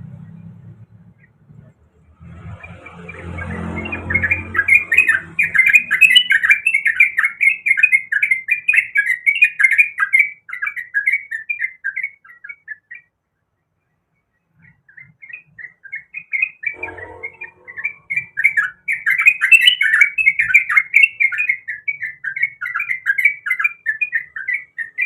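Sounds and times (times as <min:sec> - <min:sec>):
bird singing chattering notes: 0:02.4 - 0:12.9, 0:14.5 - 0:25.0
low rumble: 0:16.8 - 0:18.4.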